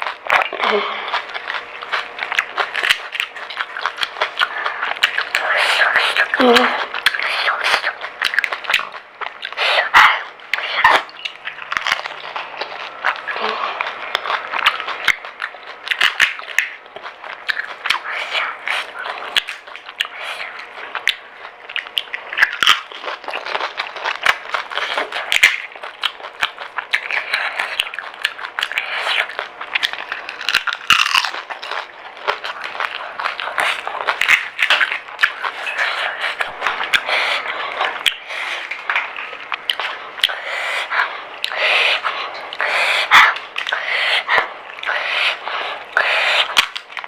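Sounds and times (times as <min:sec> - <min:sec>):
crisp shells crunching and chewing: 0:00.0 - 0:47.0.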